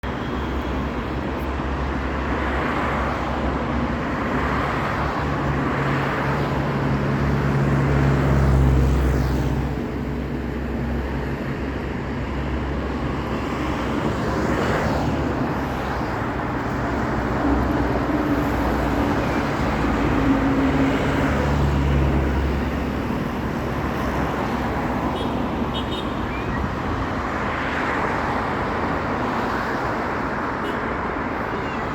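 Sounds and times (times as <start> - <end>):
traffic noise: 0.0 - 31.9.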